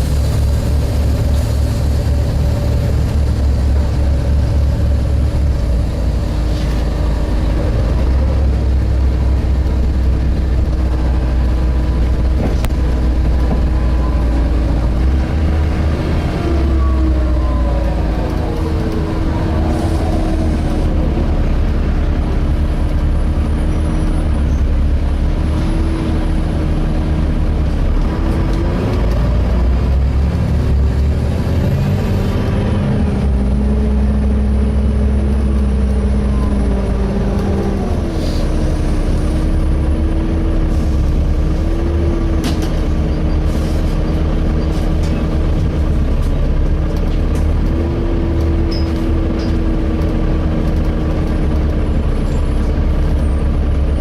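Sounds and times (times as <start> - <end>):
diesel bus engine rumbling: 0.0 - 54.0.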